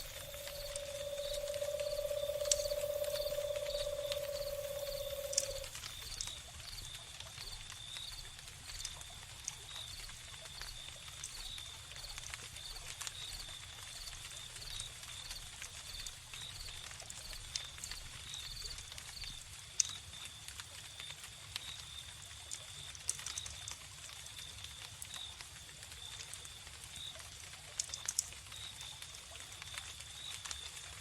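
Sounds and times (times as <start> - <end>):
owl hoot: 0.0 - 5.8
crickets chirping: 0.0 - 6.3
wood fire crackling: 0.0 - 6.3.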